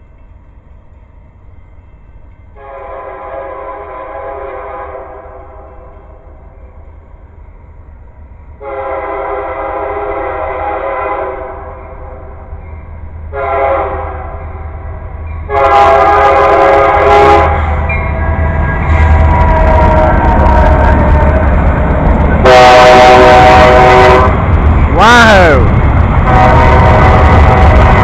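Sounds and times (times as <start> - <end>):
train rumbling: 0.0 - 28.0
locomotive air horn blasts: 2.6 - 5.7, 8.6 - 12.2, 13.3 - 14.6, 15.5 - 18.5, 19.3 - 21.1, 22.4 - 24.5, 26.2 - 28.0.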